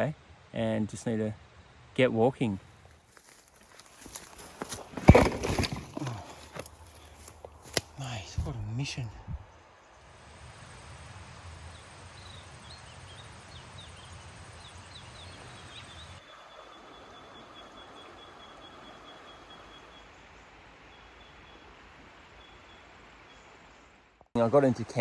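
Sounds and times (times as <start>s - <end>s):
low wind-like rumble: 8.0s - 16.0s
steady high insect tone: 9.9s - 21.8s.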